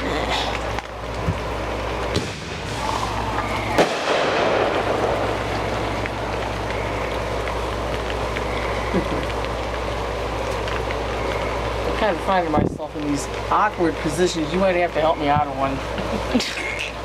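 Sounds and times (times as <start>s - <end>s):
firework crackling: 0.0s - 17.0s
steady hiss: 0.0s - 17.0s
small firework pop: 2.1s - 3.0s, 3.7s - 4.9s
firework bang: 2.1s - 5.4s.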